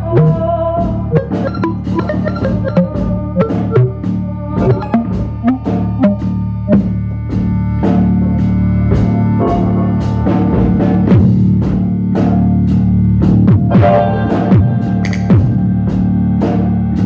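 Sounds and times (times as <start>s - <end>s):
low bass line: 0.0s - 7.8s.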